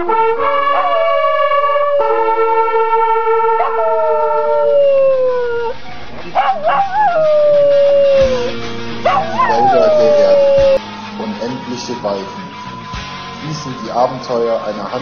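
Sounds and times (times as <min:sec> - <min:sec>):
dog howling: 0:00.0 - 0:10.9
background music: 0:00.0 - 0:15.0.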